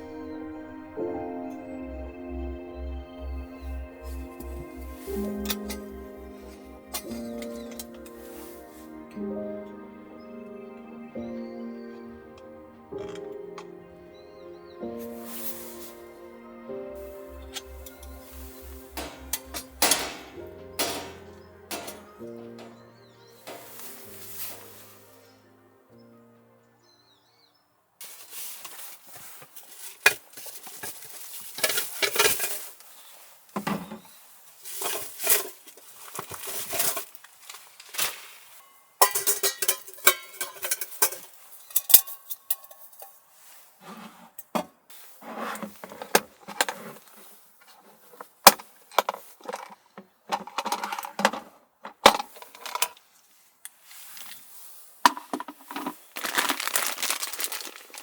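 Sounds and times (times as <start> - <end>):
objects clinking and knocking: 3.6 - 8.2, 17.0 - 24.8, 39.0 - 43.2, 55.1 - 58.0.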